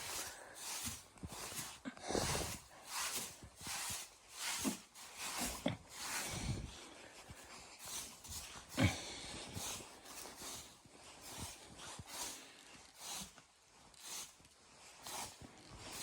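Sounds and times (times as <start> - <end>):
footsteps crunching in snow: 0.0 - 16.0.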